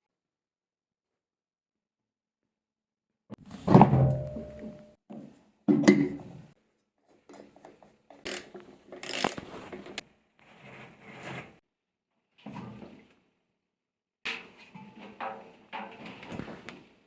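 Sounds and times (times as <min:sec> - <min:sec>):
hand tool clicking and scraping: 0:08.2 - 0:10.0.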